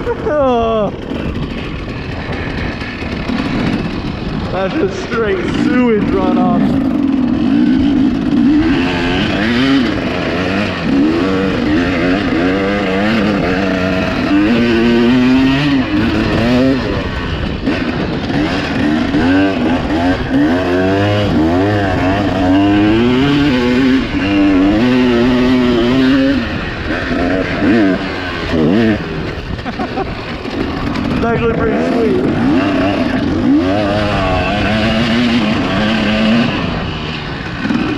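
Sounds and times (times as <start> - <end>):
dirt bike engine revving: 0.0 - 37.9.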